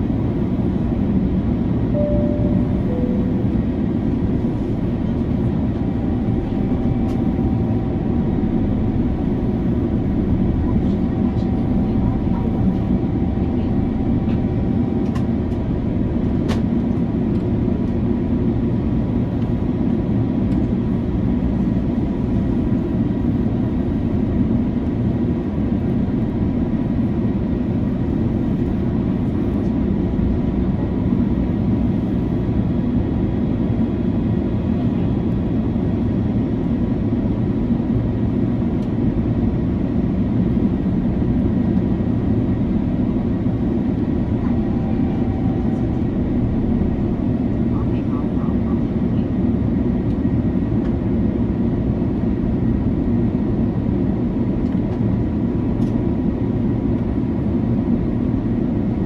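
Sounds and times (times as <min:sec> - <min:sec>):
aircraft cabin airflow and engine noise: 0:00.0 - 0:59.0.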